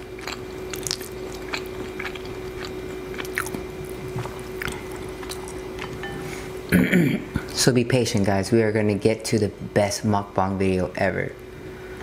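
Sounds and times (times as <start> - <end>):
chewing food: 0.0 - 6.0.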